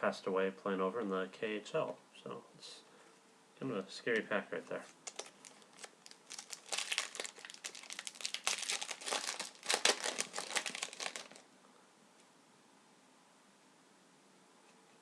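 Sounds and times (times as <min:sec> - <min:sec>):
wrapper crinkling and tearing: 0:04.9 - 0:11.4.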